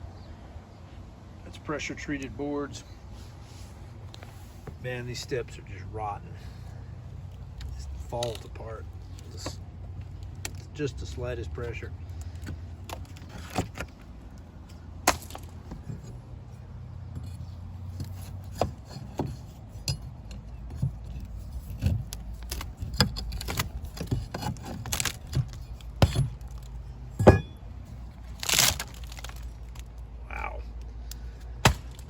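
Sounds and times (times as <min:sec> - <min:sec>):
knocks and clinks on wooden boards: 0:12.2 - 0:27.7
low hum: 0:24.8 - 0:32.0.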